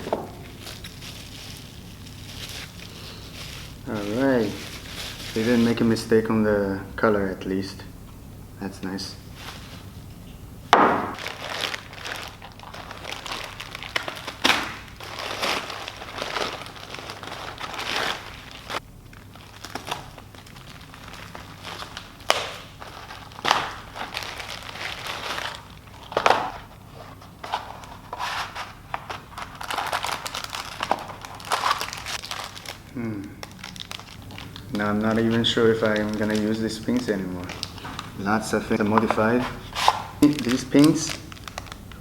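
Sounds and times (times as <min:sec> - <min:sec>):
plastic packaging crinkling: 0:00.0 - 0:06.2, 0:10.8 - 0:42.0
sharp plastic crackles: 0:10.7 - 0:26.8, 0:27.4 - 0:38.2, 0:38.8 - 0:42.0.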